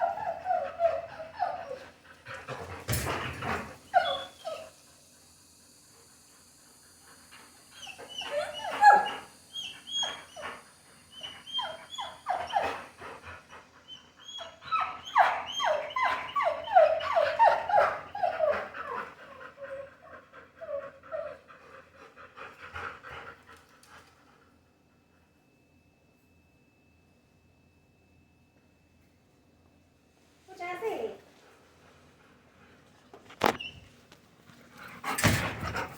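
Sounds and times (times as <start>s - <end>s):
dog whining: 0.0s - 4.8s, 7.7s - 21.5s.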